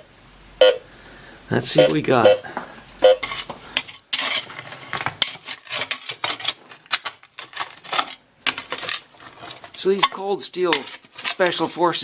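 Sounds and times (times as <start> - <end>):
shovel scraping rocky ground: 3.2 - 12.0.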